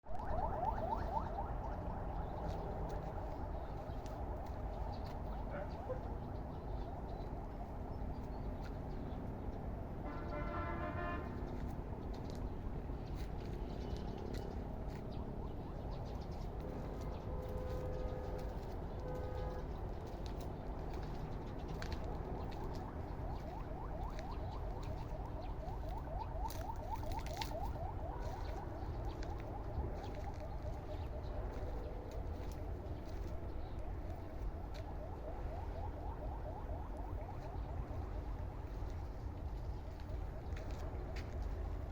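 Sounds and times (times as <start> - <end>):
steady low rumble: 0.0 - 10.2, 11.2 - 41.9
held honk-like tone: 10.0 - 11.4.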